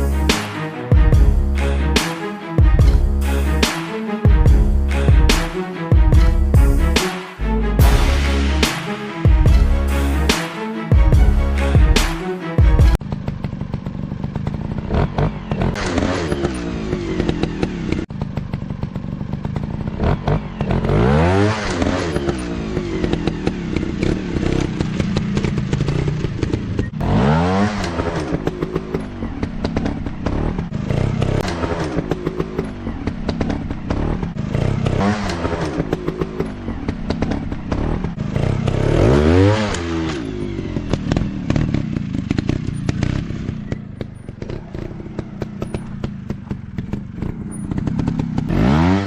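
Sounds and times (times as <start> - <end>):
dirt bike engine revving: 12.8 - 49.0.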